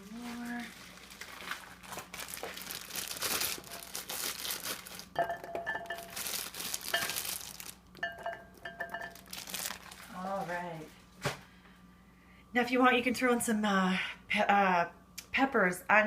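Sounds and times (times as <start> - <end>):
plastic packaging crinkling: 0.1 - 8.0, 8.9 - 10.2
ceramic pot clinking: 5.1 - 6.3, 6.9 - 7.3, 8.0 - 9.4.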